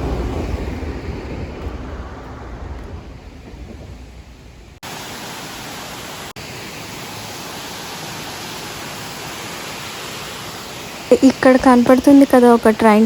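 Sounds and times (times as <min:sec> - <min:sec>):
low rumble: 0:00.0 - 0:04.8
water rushing: 0:00.0 - 0:13.0.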